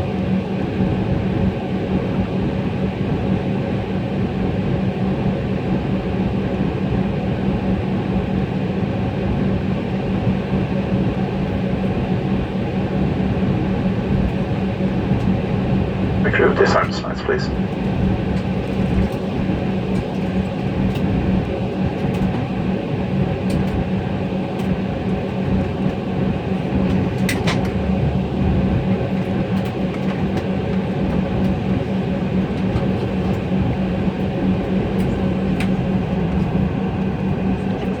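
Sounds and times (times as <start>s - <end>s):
aircraft cabin hum: 10.7s - 38.0s.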